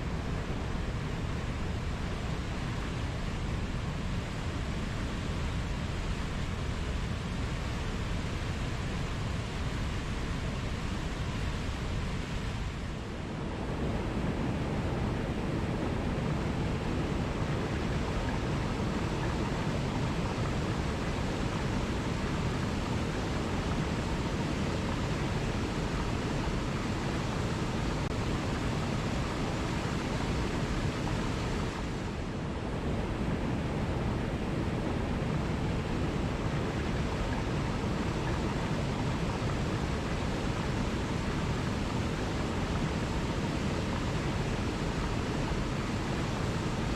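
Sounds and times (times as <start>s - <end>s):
falling water rushing: 13.1s - 46.9s.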